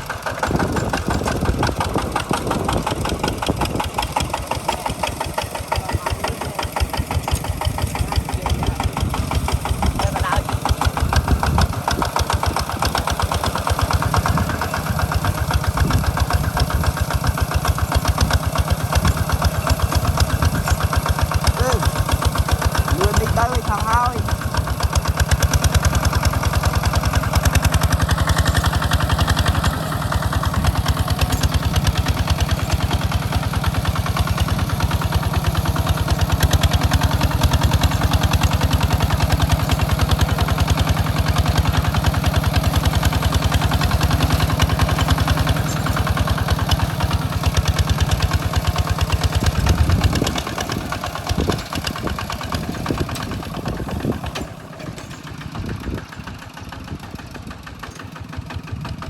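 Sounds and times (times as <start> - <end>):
hand tractor engine running: 0.0 - 59.0.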